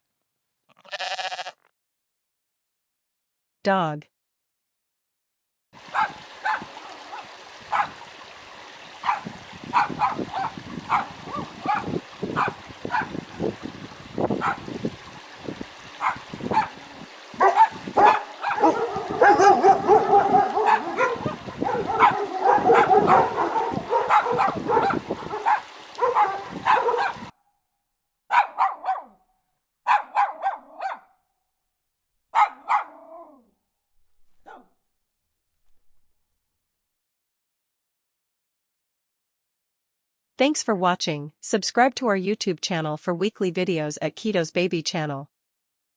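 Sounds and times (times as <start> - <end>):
dog barking: 5.8 - 8.1, 9.0 - 13.6, 14.4 - 14.7, 16.0 - 27.3, 28.3 - 29.2, 29.9 - 31.2, 32.4 - 33.4, 34.3 - 34.7
dog yelps: 5.9 - 8.0, 9.0 - 13.6, 14.4 - 14.7, 16.0 - 27.3, 28.3 - 29.2, 29.9 - 31.1, 32.4 - 33.4, 34.4 - 34.7.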